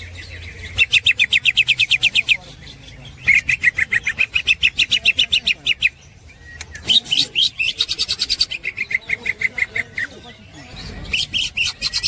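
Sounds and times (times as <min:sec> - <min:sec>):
bird singing chattering notes: 0:00.0 - 0:12.0.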